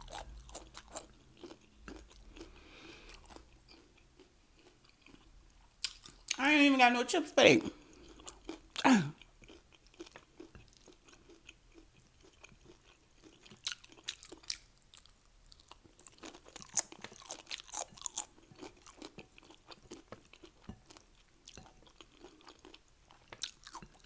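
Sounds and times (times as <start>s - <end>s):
crunchy chewing of chips: 0.0s - 6.4s, 7.7s - 24.0s.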